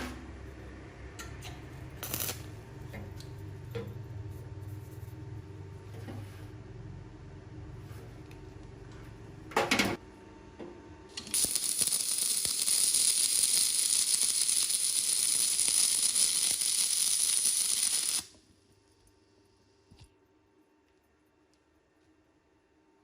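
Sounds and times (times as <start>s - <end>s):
welding arc crackling: 2.0s - 2.6s, 11.2s - 18.4s.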